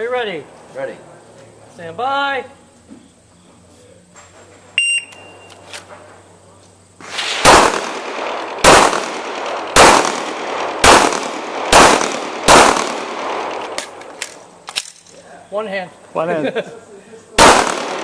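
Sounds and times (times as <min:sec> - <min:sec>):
shot timer beep: 0:04.8 - 0:05.5
pistol shots with echo: 0:07.0 - 0:14.1, 0:17.4 - 0:18.0.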